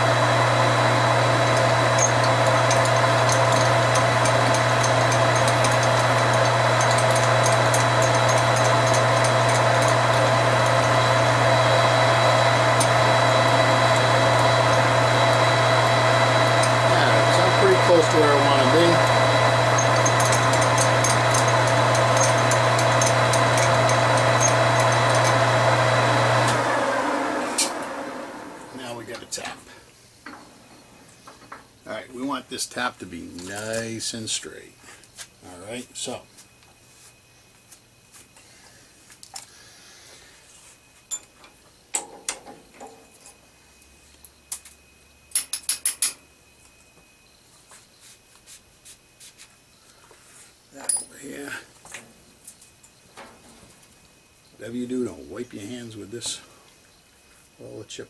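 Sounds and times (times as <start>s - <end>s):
metal lathe running: 0.0s - 29.6s
metal tools clicking and clinking: 19.8s - 25.3s, 50.8s - 51.2s.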